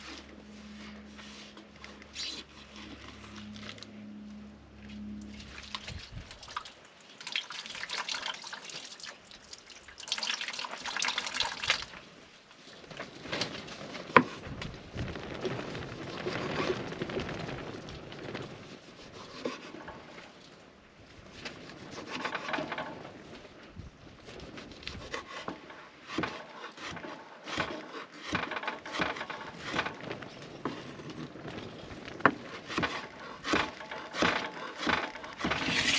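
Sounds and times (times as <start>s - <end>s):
water dripping: 5.2s - 12.0s
wood knocking and scraping: 21.4s - 23.2s, 24.3s - 35.9s
water splashing: 35.4s - 35.9s.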